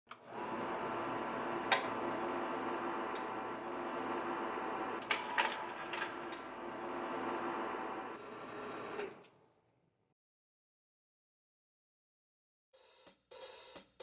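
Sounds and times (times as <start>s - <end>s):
projector fan hum: 0.2s - 8.2s.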